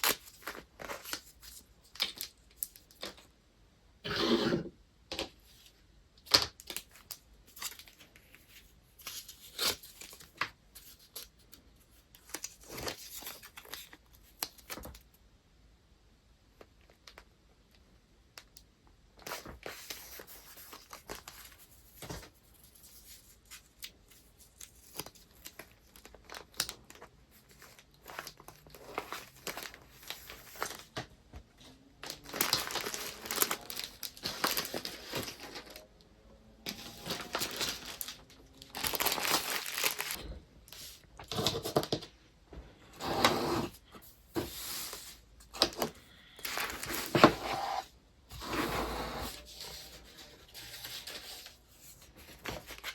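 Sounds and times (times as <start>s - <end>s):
paper rustling and crinkling: 0.0s - 3.2s, 5.5s - 15.0s, 19.2s - 35.9s, 36.6s - 42.0s, 44.3s - 47.8s, 49.2s - 52.9s.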